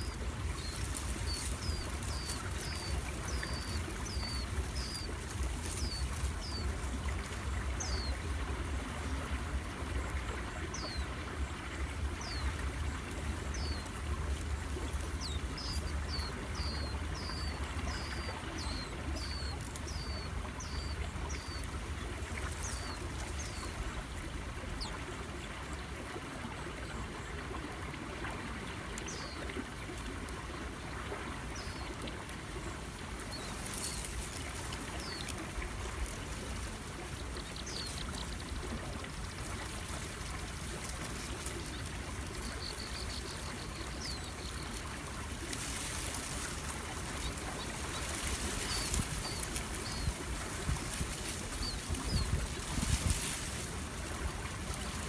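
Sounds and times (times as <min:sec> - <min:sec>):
river water: 0:00.0 - 0:55.0.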